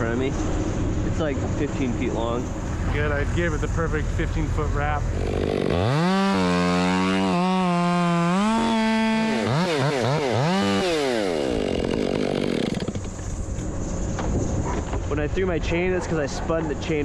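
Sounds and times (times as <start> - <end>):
chainsaw idling: 4.4 - 13.3
chainsaw revving and cutting: 5.0 - 13.2.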